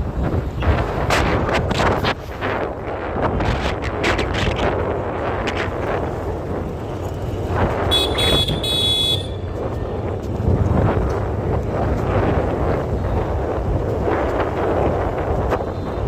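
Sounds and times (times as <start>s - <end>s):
road traffic rumble: 0.0s - 16.0s
wind buffeting microphone: 0.0s - 16.0s
vehicle horn honking: 7.9s - 9.5s.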